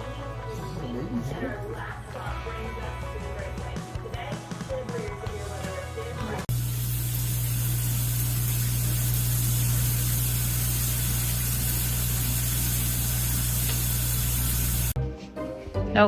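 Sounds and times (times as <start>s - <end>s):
loud hiss: 6.5s - 15.0s.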